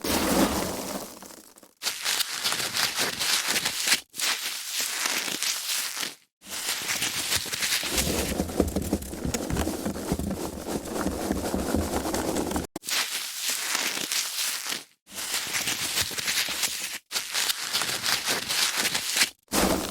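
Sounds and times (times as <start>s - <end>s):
foam packaging crackling: 1.8s - 19.9s.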